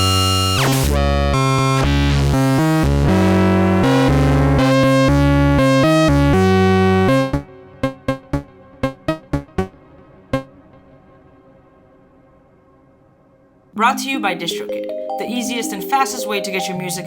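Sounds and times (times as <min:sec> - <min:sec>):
synthesizer chords: 0:02.0 - 0:11.0, 0:13.8 - 0:17.0.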